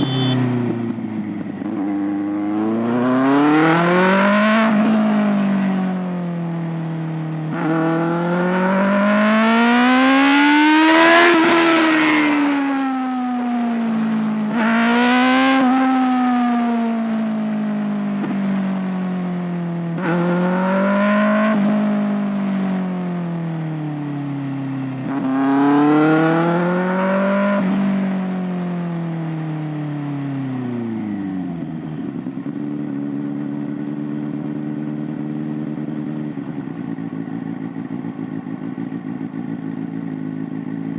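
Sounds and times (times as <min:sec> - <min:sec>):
motorcycle engine revving: 0:00.0 - 0:23.8, 0:24.5 - 0:29.4, 0:30.3 - 0:40.9.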